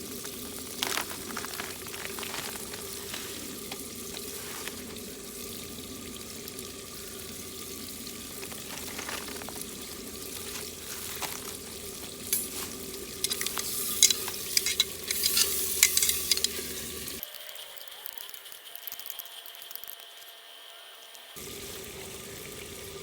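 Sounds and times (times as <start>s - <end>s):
crackles and pops: 0.0s - 5.0s
food frying in hot oil: 0.0s - 17.3s, 18.1s - 23.0s.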